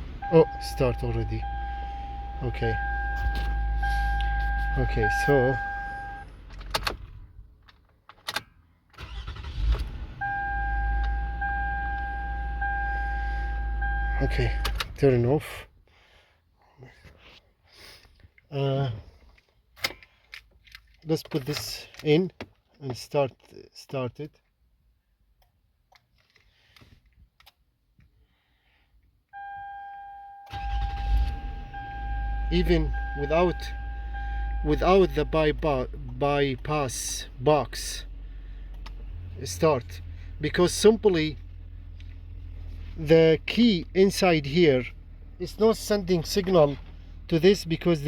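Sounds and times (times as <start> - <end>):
car engine: 0.0 - 15.2, 30.5 - 48.0
electronic warning tone: 0.2 - 6.2, 31.7 - 35.4
engine cranking: 9.0 - 10.1, 30.5 - 36.6.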